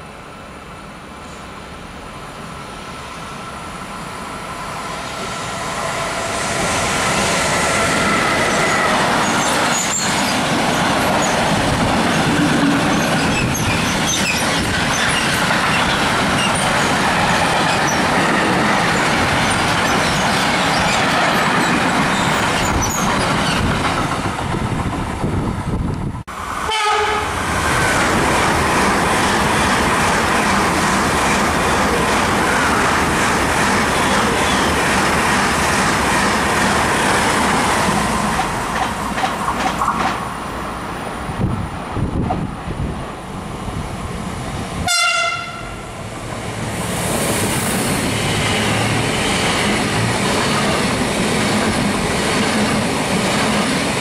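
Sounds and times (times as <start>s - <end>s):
freight train wheel rumble: 0.0s - 54.0s
passenger train rushing past: 0.0s - 54.0s
wheels clicking over rail joints: 38.4s - 40.2s.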